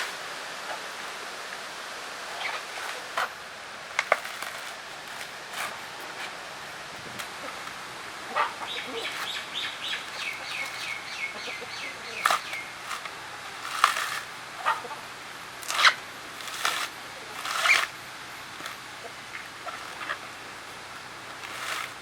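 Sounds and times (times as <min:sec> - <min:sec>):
coconut husk cracking: 0:02.4 - 0:06.4, 0:11.9 - 0:14.9, 0:15.5 - 0:22.0.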